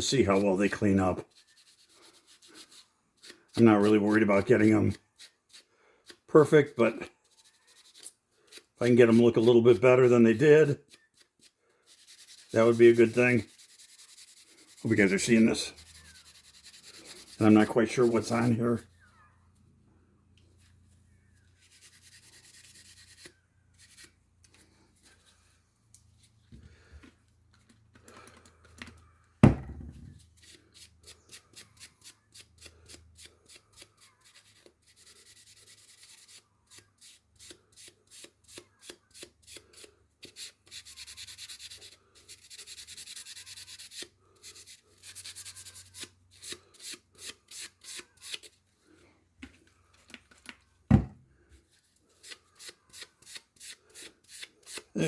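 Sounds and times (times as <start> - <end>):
scrubbing metal blade: 0.1 - 18.6, 52.2 - 55.0.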